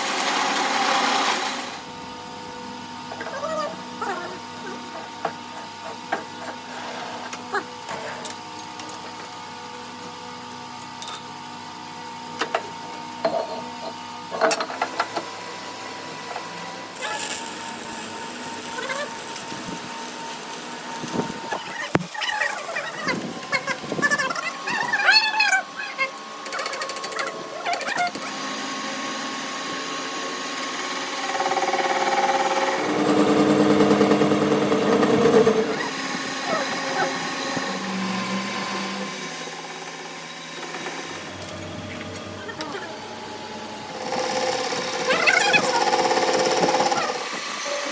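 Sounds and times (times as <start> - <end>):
machine humming: 15.8 - 24.8, 30.2 - 47.6.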